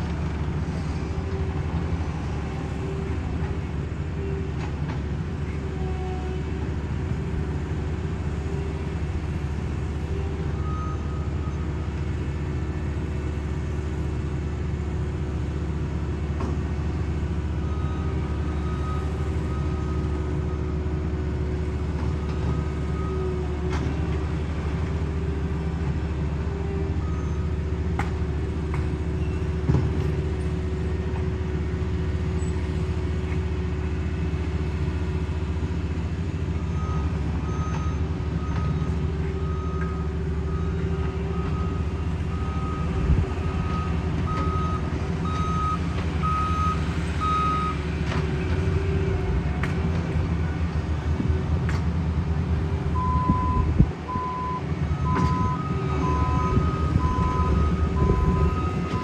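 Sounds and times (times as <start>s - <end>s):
paving machine engines running: 0.0s - 59.0s
reversing alarm beeping: 36.8s - 47.8s, 53.0s - 59.0s.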